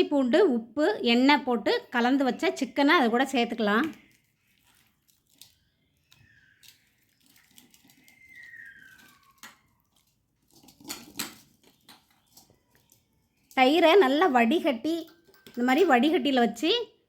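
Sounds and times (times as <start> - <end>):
soft wet handling of food: 3.8 - 13.6.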